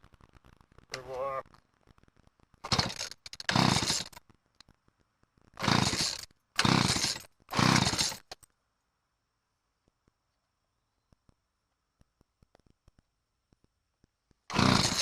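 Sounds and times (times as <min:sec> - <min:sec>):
chainsaw engine turning over: 0:02.6 - 0:04.2, 0:05.6 - 0:08.4, 0:14.5 - 0:15.0
chainsaw starter cord pulls: 0:02.6 - 0:04.2, 0:05.6 - 0:08.4, 0:14.5 - 0:15.0.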